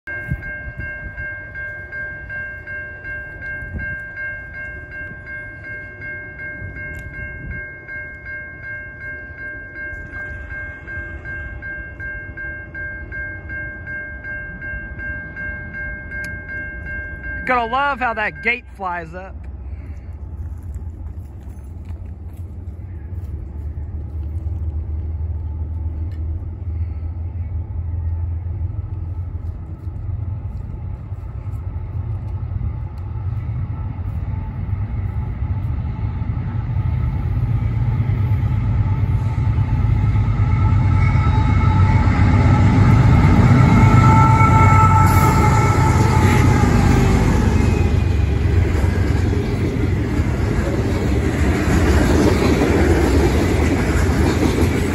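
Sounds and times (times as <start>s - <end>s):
diesel engine rumble: 18.1s - 54.9s
freight cars rolling past: 18.7s - 54.9s
train horn chord: 39.1s - 48.2s.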